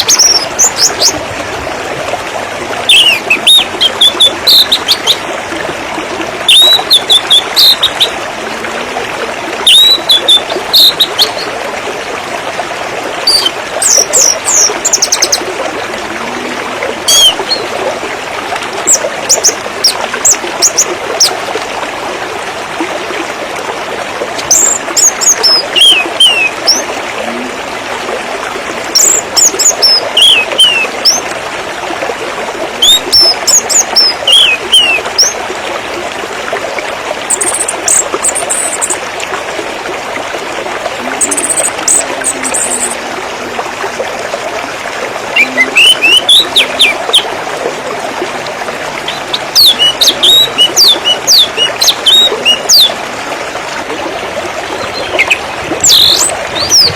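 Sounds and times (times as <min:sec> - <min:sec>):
water trickling: 0:00.0 - 0:56.9.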